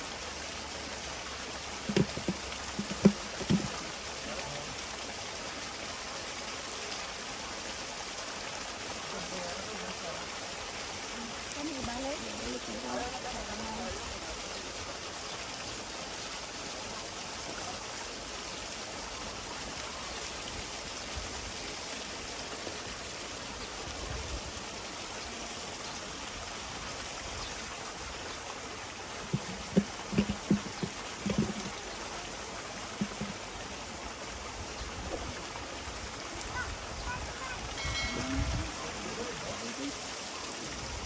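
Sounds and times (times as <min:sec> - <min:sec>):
running water rushing: 0:00.0 - 0:41.0
short sharp knocks: 0:01.9 - 0:03.8.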